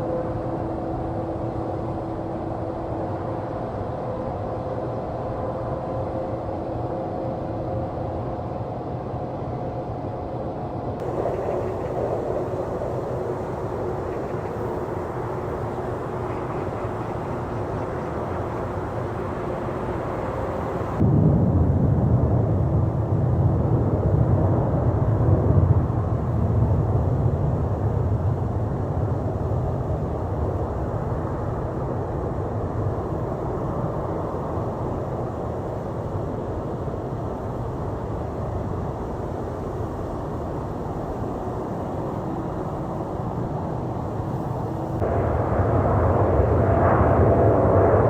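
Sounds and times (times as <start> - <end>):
jet engine roar: 11.0 - 48.0.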